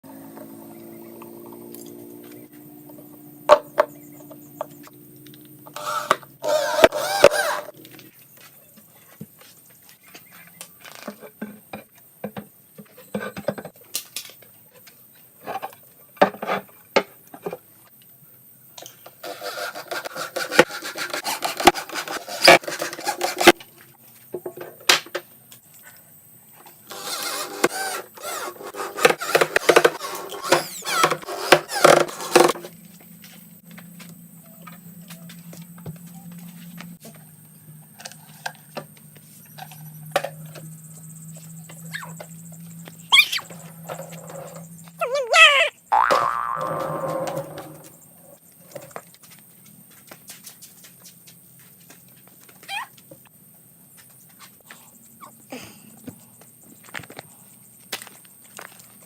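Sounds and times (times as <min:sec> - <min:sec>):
rubbing and scraping: 0:19.2 - 0:23.6, 0:26.9 - 0:32.7.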